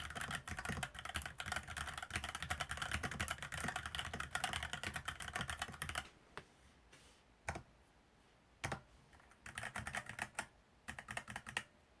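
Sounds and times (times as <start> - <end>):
keyboard typing: 0.0 - 6.1, 7.4 - 7.7, 8.6 - 11.7.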